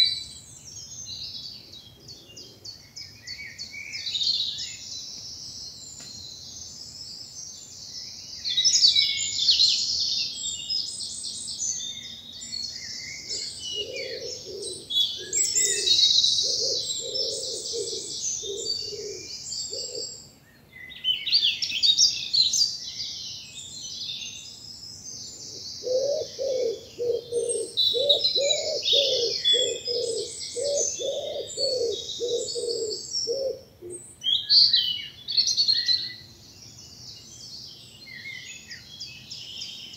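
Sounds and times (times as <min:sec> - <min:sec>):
songbirds singing: 0:00.0 - 0:39.9
pigeon cooing: 0:13.3 - 0:20.2, 0:25.8 - 0:34.0.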